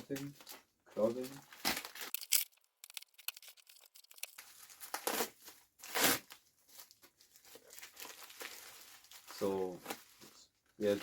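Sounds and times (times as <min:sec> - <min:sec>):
packaging crinkling and tearing: 0:00.4 - 0:10.2.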